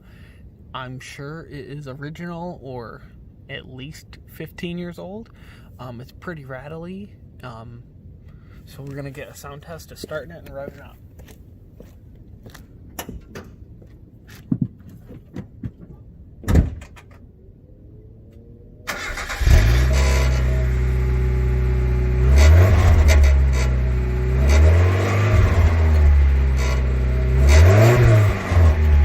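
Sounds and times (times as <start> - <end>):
thump: 16.4 - 17.0
car engine starting and idling: 17.6 - 29.0
rattly exhaust: 18.9 - 29.0.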